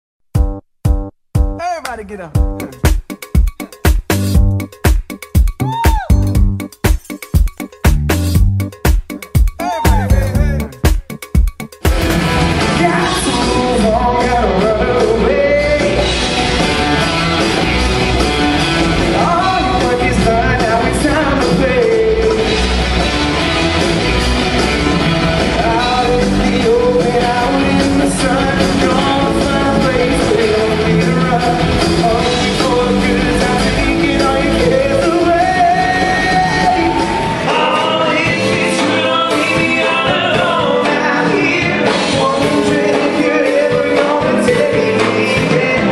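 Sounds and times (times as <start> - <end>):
instrumental backing music: 0.3 - 45.9
person singing: 5.6 - 6.4, 9.4 - 11.2, 12.5 - 16.2, 18.6 - 22.6, 24.8 - 45.9.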